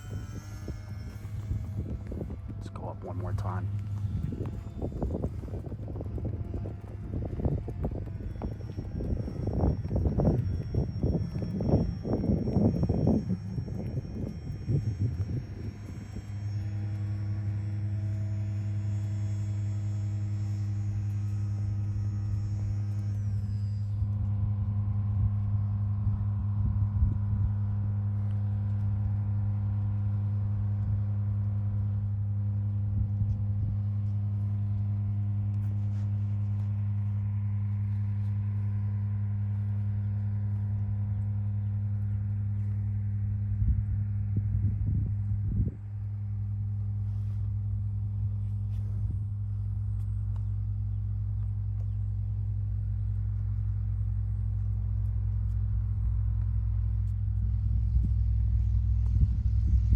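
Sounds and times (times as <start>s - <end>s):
electric motor whine: 0.0s - 59.9s
steady low hum: 0.0s - 59.9s.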